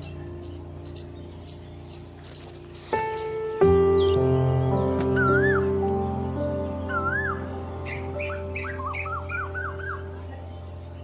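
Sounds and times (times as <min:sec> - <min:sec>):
held chords: 0:00.0 - 0:11.0.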